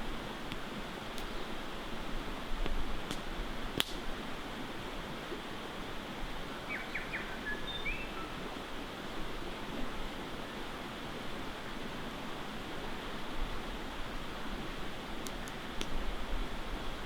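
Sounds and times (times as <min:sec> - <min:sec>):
campfire crackling: 0:00.0 - 0:04.2, 0:15.0 - 0:16.2
bird chirps: 0:06.7 - 0:08.4.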